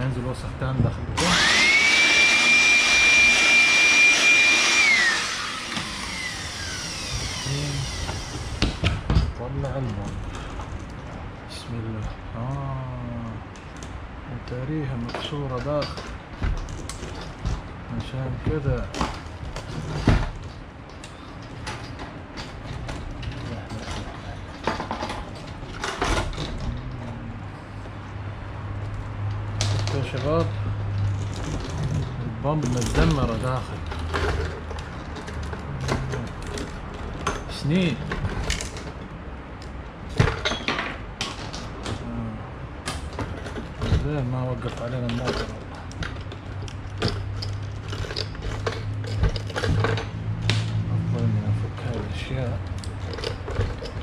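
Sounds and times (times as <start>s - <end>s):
vacuum motor whining: 1.2s - 8.8s
clicks and knocks of handled parts: 7.4s - 28.0s, 28.7s - 50.9s, 51.6s - 54.0s.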